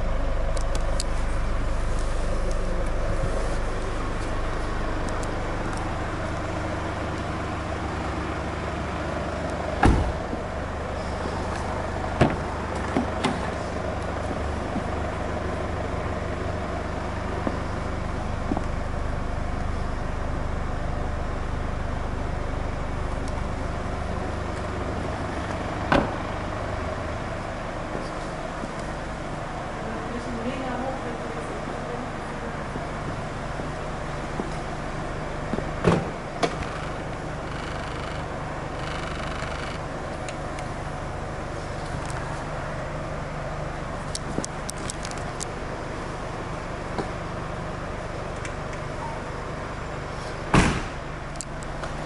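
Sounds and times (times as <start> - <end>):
diesel engine idling: 0.0 - 52.0
car doors thumping and clicking: 9.7 - 10.5, 12.1 - 13.6, 25.8 - 26.2, 35.5 - 40.3, 50.5 - 51.0.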